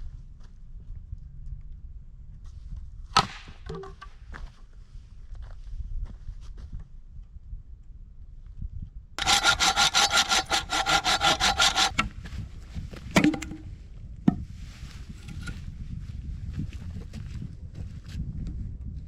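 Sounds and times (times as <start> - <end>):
saw cutting through wood: 9.2 - 12.1, 13.2 - 13.6.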